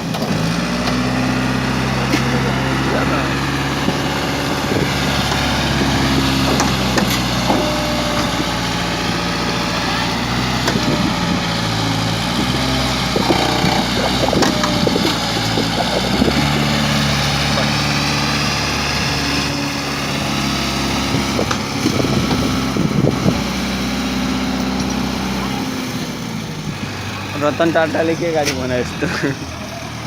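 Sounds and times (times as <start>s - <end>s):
diesel engine running: 0.0s - 30.0s
knocks and clatter: 4.8s - 8.5s, 12.5s - 17.8s.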